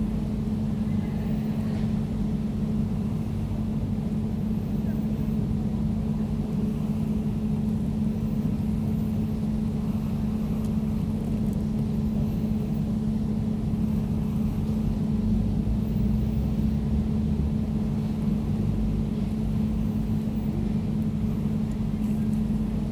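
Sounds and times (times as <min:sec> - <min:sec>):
air conditioner humming: 0:00.0 - 0:22.9.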